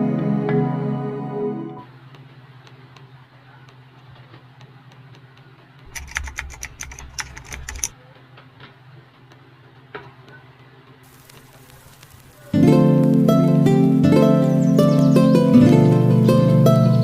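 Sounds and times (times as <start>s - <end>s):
light clicks: 2.1s - 8.0s
rapid sharp clicks and taps: 2.1s - 8.0s
steady low hum: 10.9s - 17.0s.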